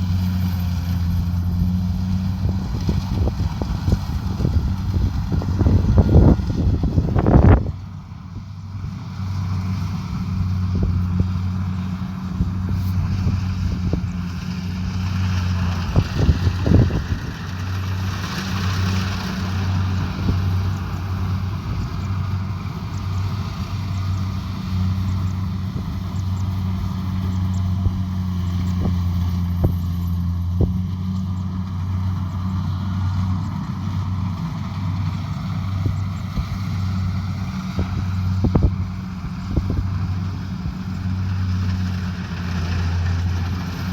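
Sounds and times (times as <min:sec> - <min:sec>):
combine harvester engine drone: 0:00.0 - 0:43.9.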